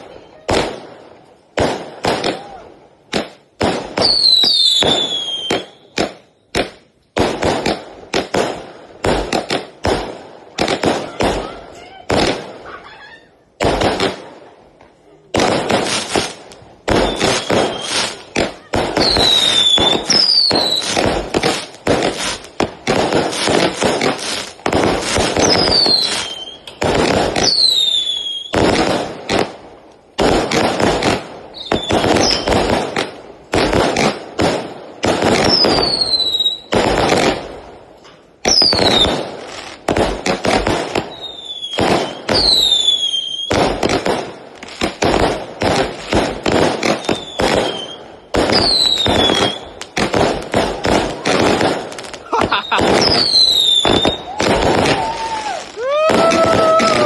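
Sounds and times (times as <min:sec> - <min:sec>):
fireworks shots bursting: 0:00.0 - 0:57.0
fireworks whistles gliding down: 0:04.0 - 0:06.6, 0:16.0 - 0:28.8, 0:31.5 - 0:32.7, 0:35.4 - 0:37.2, 0:38.4 - 0:39.5, 0:40.9 - 0:44.0, 0:46.8 - 0:49.9, 0:52.2 - 0:57.0.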